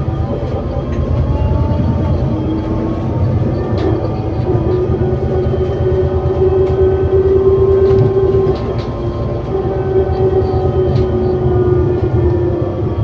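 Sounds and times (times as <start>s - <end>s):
bus engine rumble: 0.0s - 13.0s
drivetrain high whine: 0.0s - 13.0s.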